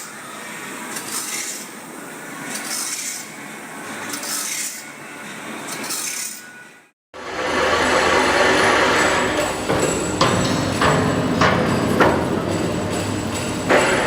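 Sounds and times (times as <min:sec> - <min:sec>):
machine hissy scraping strokes: 0:00.0 - 0:10.7
steady mechanical background: 0:00.0 - 0:14.0.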